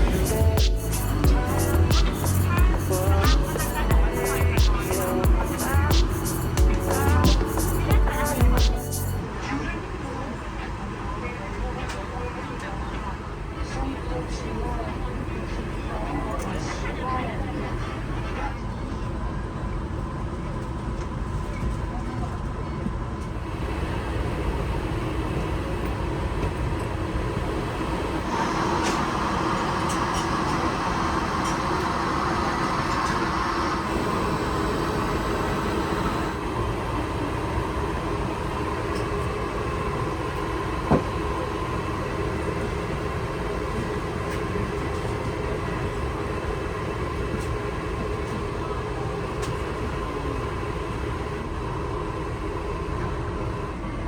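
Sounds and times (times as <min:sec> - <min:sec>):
bright hiss: 0:00.0 - 0:09.2.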